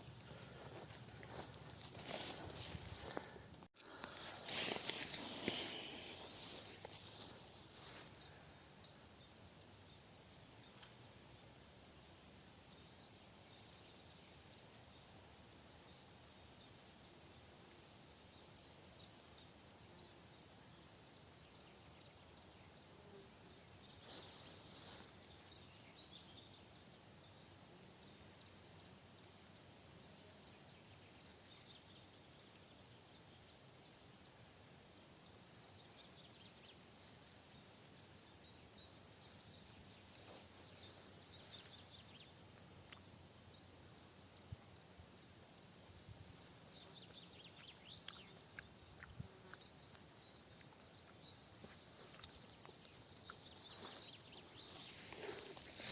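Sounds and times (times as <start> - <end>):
brief rustle: 0.4 - 3.3, 4.1 - 8.2.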